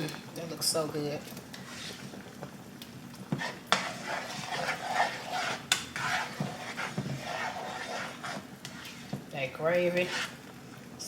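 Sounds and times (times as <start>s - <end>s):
gravy simmering: 0.0s - 11.0s
utensil scraping in a pan: 1.3s - 2.5s, 3.1s - 10.5s.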